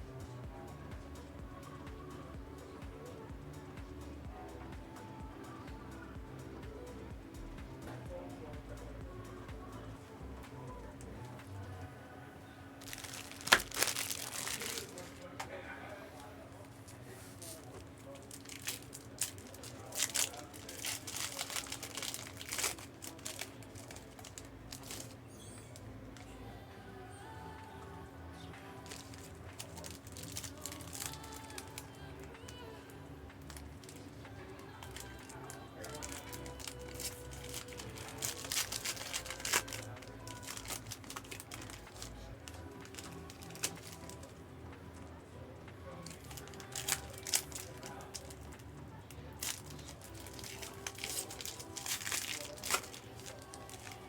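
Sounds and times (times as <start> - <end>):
faint steady hum: 0.0 - 54.0
plastic wrapper crackling: 12.8 - 15.5, 17.4 - 25.8, 28.8 - 44.4, 46.0 - 48.6, 49.3 - 54.0.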